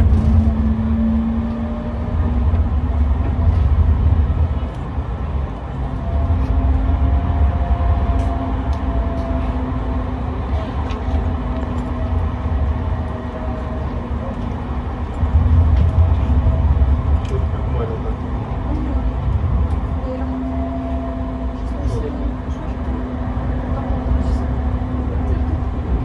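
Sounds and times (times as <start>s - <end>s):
tram rumbling on track: 0.0s - 26.0s.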